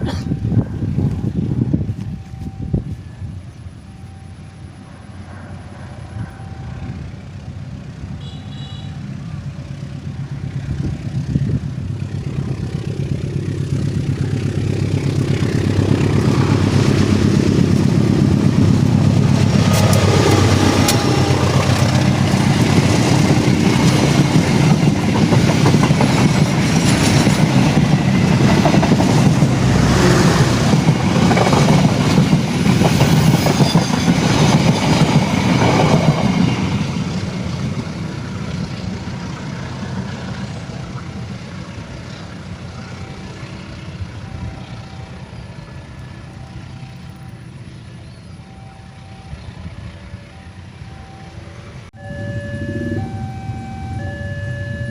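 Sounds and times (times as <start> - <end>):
train rumbling past: 0.0 - 54.9
wheels clicking over rail joints: 9.8 - 29.7.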